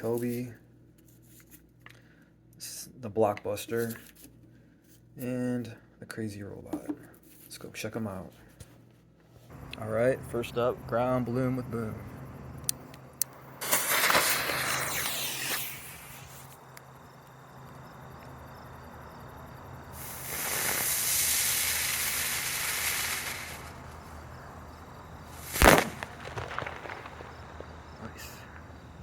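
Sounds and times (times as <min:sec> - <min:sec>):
small firework cracks: 0:12.7 - 0:16.6, 0:20.0 - 0:24.0, 0:25.3 - 0:28.9
firework bang: 0:13.6 - 0:16.5, 0:20.0 - 0:23.8, 0:25.3 - 0:28.8
firework sparks hissing: 0:13.6 - 0:16.6, 0:19.9 - 0:24.2, 0:25.2 - 0:28.8.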